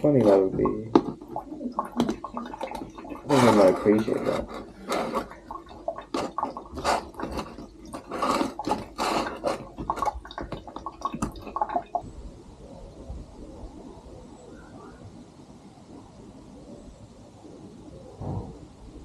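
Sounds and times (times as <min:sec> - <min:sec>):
water splashing and dripping: 0:00.0 - 0:12.1.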